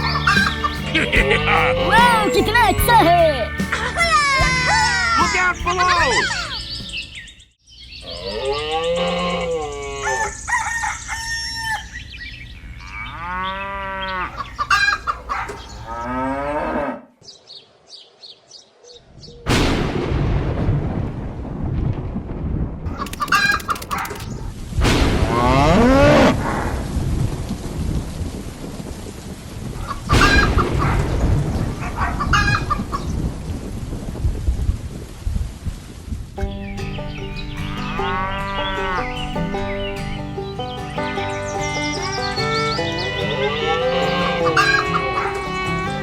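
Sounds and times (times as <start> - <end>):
roosters crowing: 0.0 - 2.2, 8.1 - 12.1, 12.8 - 17.0, 22.9 - 24.5, 29.8 - 33.1, 37.0 - 46.0.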